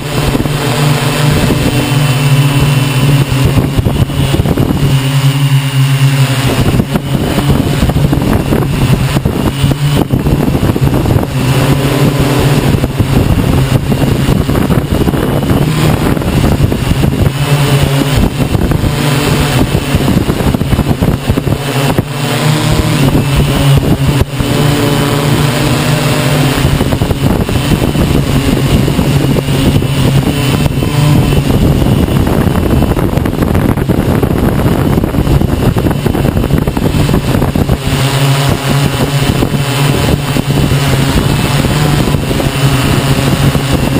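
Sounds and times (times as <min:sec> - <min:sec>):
drone propellers droning: 0:00.0 - 0:43.9
gusty wind noise: 0:00.0 - 0:43.9.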